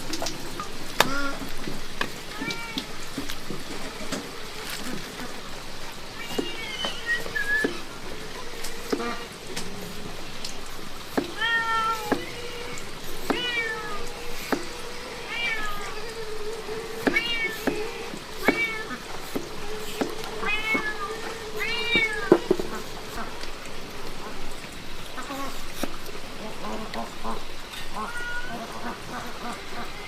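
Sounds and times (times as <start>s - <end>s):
cat meowing: 2.3s - 3.0s, 6.2s - 7.8s, 11.4s - 22.8s, 28.0s - 28.6s.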